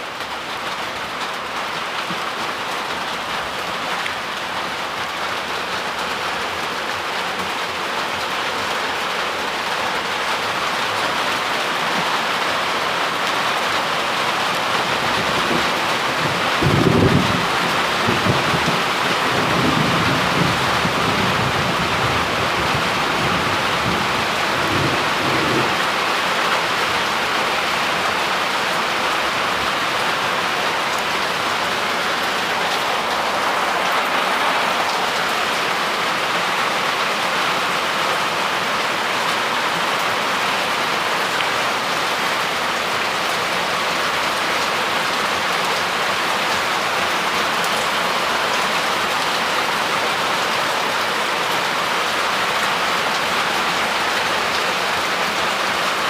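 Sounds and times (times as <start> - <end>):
heavy rain: 0.0 - 56.0
low rumble of thunder: 15.5 - 25.8.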